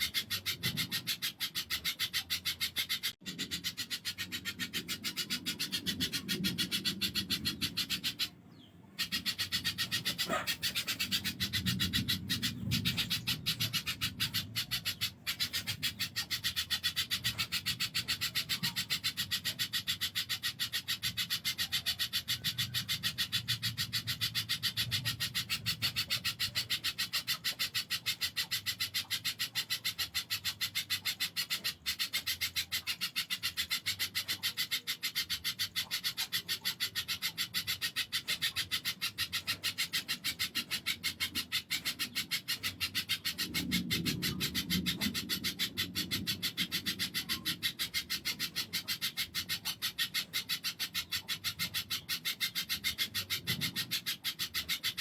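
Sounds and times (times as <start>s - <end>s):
bird calling in rasping notes: 0.0s - 55.0s.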